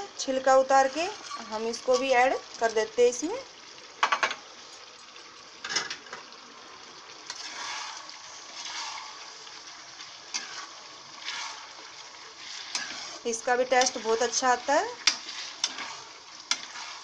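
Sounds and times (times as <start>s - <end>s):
vegetables sizzling in hot oil: 0.0s - 17.0s
spatula stirring: 7.3s - 17.0s.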